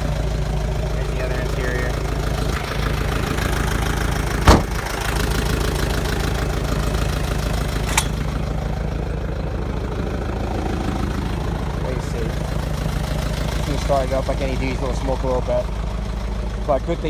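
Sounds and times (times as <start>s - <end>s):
diesel truck engine idling: 0.0s - 17.0s
loud sharp knock: 4.5s - 4.8s.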